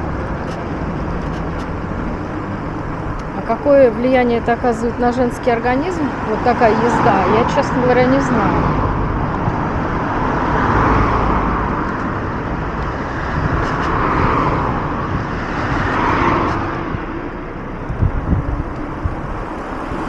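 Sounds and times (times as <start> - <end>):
cars passing: 0.0 - 20.0
road traffic noise: 0.0 - 20.0.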